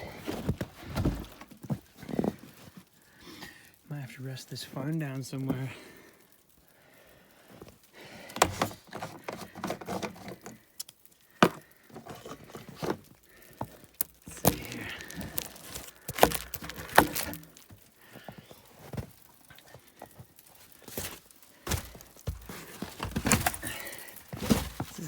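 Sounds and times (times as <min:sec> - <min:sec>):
objects knocking and clunking: 0:08.3 - 0:10.6, 0:11.4 - 0:25.0.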